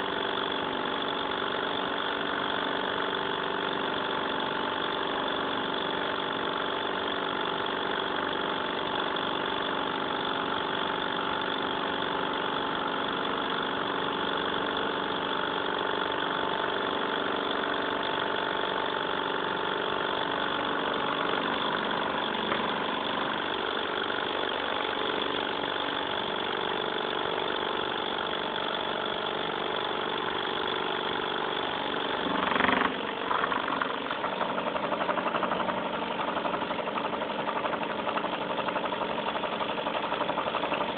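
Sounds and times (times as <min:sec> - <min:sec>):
engine mechanical hum: 0:16.7 - 0:40.9.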